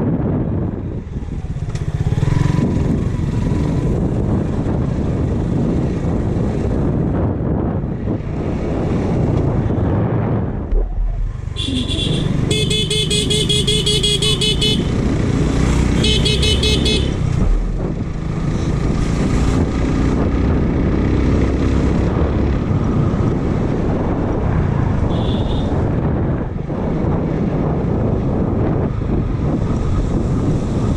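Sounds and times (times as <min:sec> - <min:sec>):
wind: 0:00.0 - 0:30.9
motorcycle engine: 0:00.2 - 0:07.1, 0:08.2 - 0:26.4
vehicle horn honking: 0:11.6 - 0:14.9, 0:16.0 - 0:17.2, 0:25.1 - 0:25.8.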